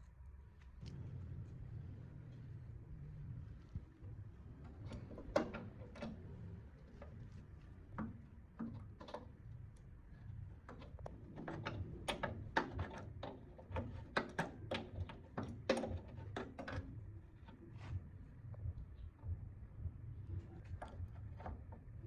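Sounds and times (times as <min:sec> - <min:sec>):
low steady hum: 0:00.0 - 0:12.5, 0:16.1 - 0:22.0
clicks and knocks of hand work: 0:10.6 - 0:17.6.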